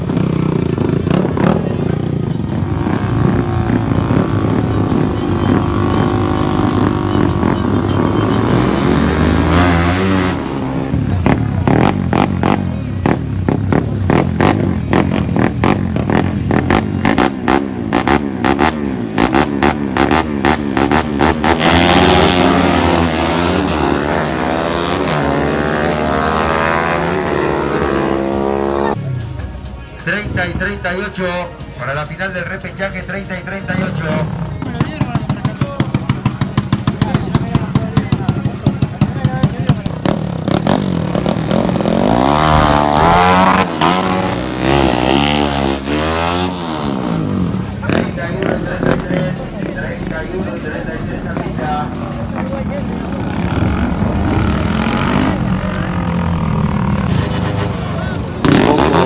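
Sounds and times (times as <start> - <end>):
drag racing engine accelerating: 0.0 - 29.0, 39.8 - 49.2, 53.0 - 59.0
engine bangs: 33.4 - 59.0.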